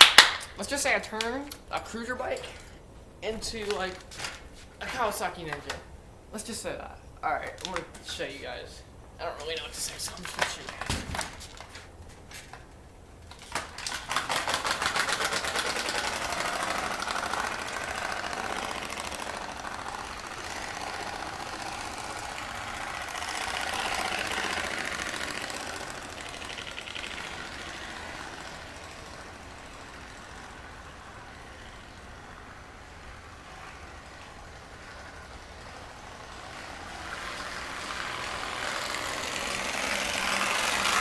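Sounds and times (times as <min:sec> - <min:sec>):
bicycle buzzing rattle: 0:01.6 - 0:06.3, 0:08.9 - 0:41.0.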